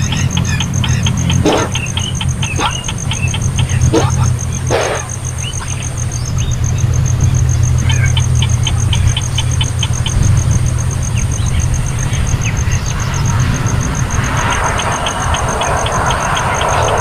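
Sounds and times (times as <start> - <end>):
fast high ticking: 0.0 - 6.2
steady low hum: 0.0 - 17.0.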